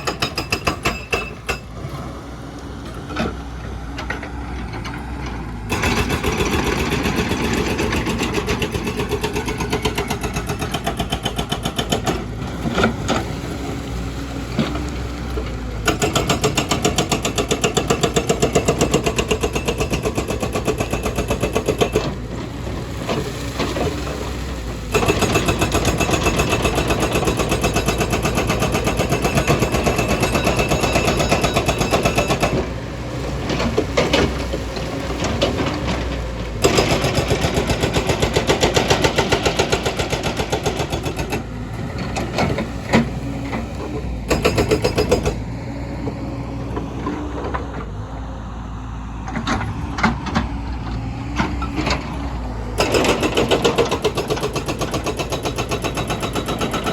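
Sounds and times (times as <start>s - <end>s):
hydraulic breaker hammering: 44.3s - 45.4s, 52.8s - 56.9s
diesel engine running: 45.1s - 56.9s.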